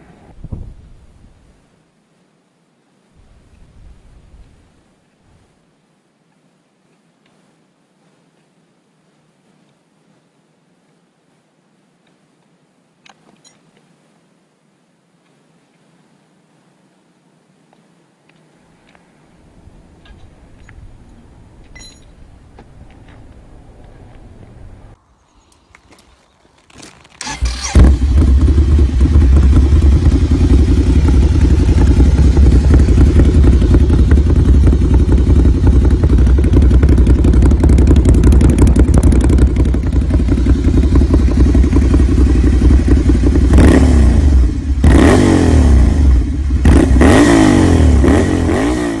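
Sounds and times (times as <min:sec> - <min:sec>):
motorcycle engine revving: 0:27.2 - 0:49.0
motorcycle engine idling: 0:27.5 - 0:44.9.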